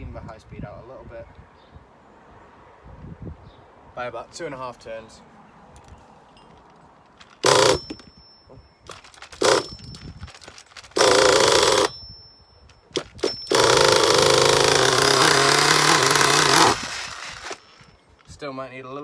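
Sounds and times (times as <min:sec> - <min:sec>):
model engine revving: 0:07.4 - 0:07.9, 0:09.0 - 0:09.8, 0:10.9 - 0:11.9, 0:13.0 - 0:17.6.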